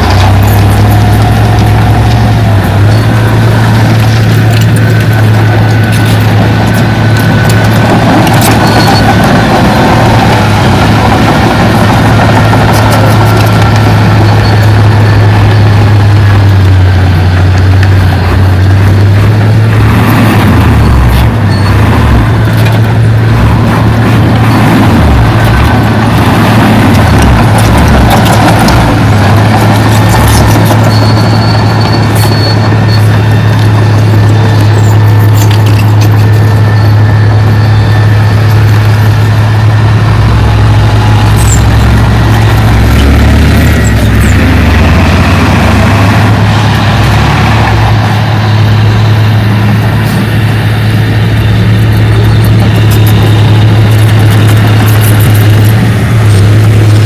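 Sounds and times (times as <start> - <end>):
deep rumble: 0.0 - 57.0
heavy diesel engine humming: 0.0 - 57.0
metallic clinks and squeaks: 2.7 - 9.4, 29.4 - 39.2, 51.9 - 55.8.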